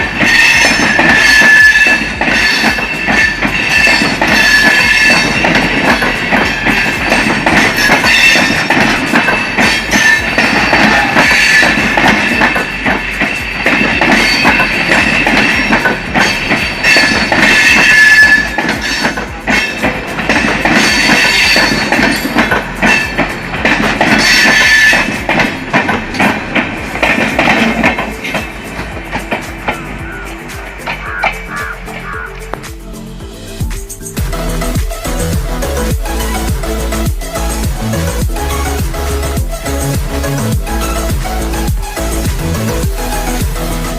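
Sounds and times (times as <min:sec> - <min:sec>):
train wheels clacking over rail joints: 0:00.0 - 0:32.8
wheels and brakes squealing: 0:00.2 - 0:25.3, 0:28.2 - 0:32.4.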